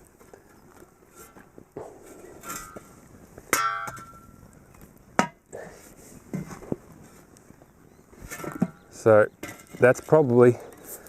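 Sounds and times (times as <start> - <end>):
wood and coals clattering on iron oven: 0.0 - 11.0
sharp metallic clang: 3.5 - 4.3.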